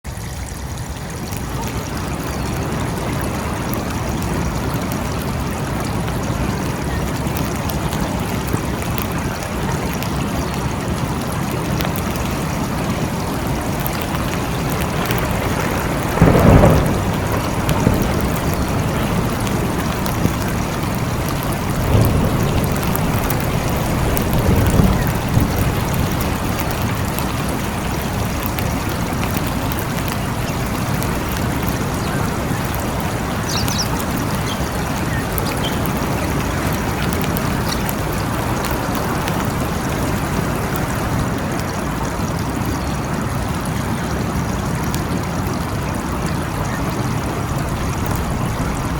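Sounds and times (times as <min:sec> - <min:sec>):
steady rain falling: 0:00.0 - 0:48.9
thunder: 0:11.9 - 0:41.4.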